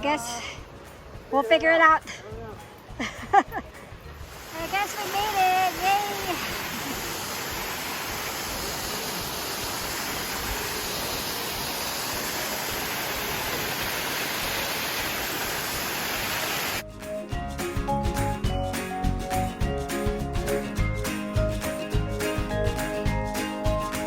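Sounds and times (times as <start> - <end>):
music: 0.0 - 6.8, 16.8 - 24.0
waterfall roaring: 4.2 - 16.8.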